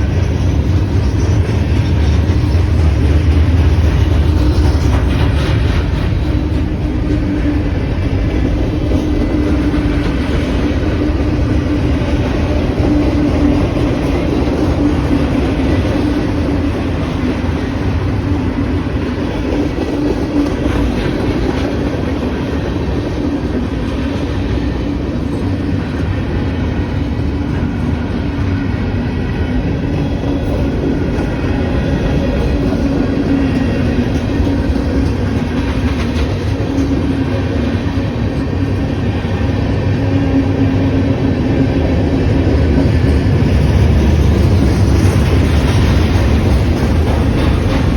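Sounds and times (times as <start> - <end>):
freight train wheels rumbling: 0.0 - 47.9.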